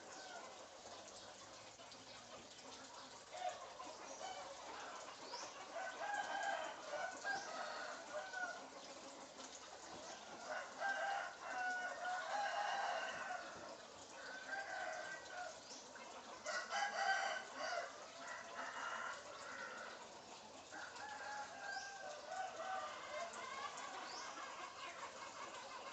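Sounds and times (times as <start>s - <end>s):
rooster crowing and clucking: 5.6s - 8.7s, 10.1s - 15.7s, 16.4s - 20.0s, 20.7s - 24.6s.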